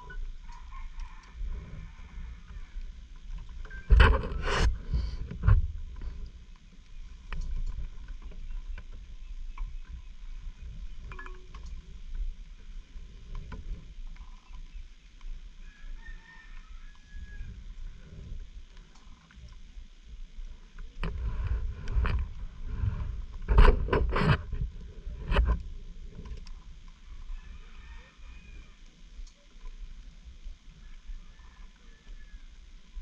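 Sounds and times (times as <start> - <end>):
wind noise: 3.7 - 6.3, 21.0 - 25.7.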